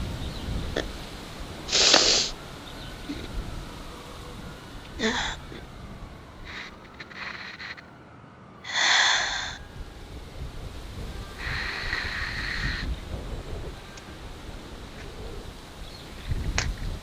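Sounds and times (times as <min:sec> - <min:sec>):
person breathing slowly: 0:01.7 - 0:02.4, 0:03.0 - 0:03.6, 0:04.3 - 0:05.8, 0:06.4 - 0:07.9, 0:08.6 - 0:09.7, 0:11.1 - 0:15.6.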